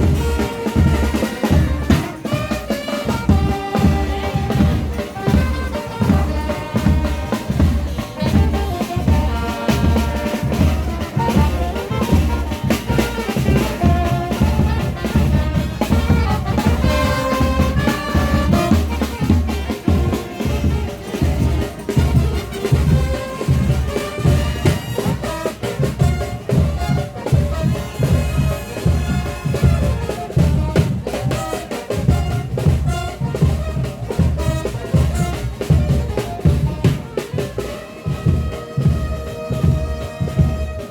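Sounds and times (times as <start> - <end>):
bass drum and snare beat: 0.0 - 40.9
trumpets and trombones melody: 0.0 - 40.9.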